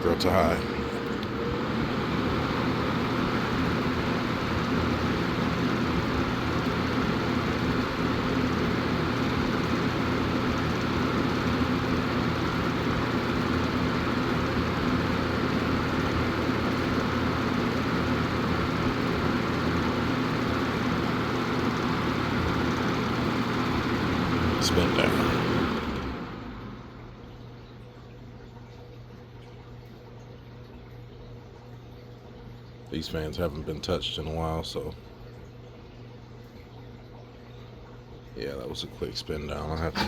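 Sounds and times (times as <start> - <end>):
fan air rushing: 0.0 - 27.2, 38.4 - 40.0
fan motor hum: 0.0 - 40.0.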